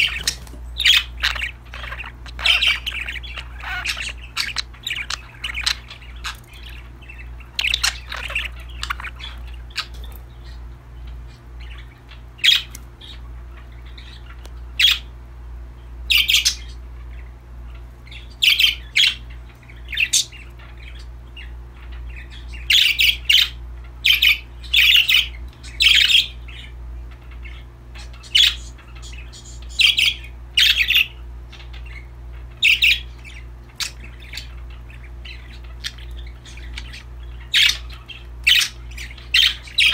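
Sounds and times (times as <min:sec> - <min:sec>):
budgerigars chirping: 0:00.0 - 0:15.2, 0:15.8 - 0:39.9
steady low hum: 0:00.0 - 0:39.9.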